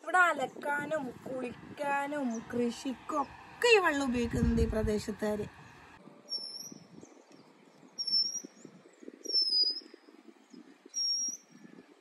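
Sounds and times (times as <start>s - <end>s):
bird whistled call: 6.3s - 6.9s, 8.0s - 10.0s, 10.9s - 11.7s.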